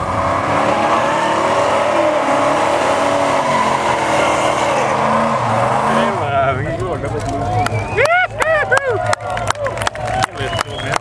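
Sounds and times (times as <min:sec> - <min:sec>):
car engine revving high: 0:00.0 - 0:06.6.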